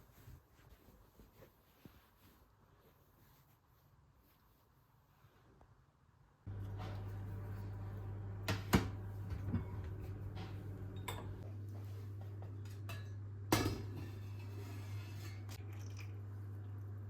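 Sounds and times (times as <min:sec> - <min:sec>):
steady low hum: 0:06.5 - 0:17.0.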